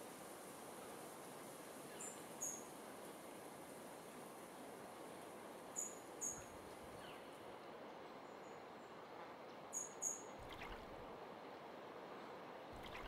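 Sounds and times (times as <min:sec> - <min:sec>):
background hiss: 0:00.0 - 0:13.0
small bird chirping: 0:09.7 - 0:10.9, 0:12.8 - 0:13.0.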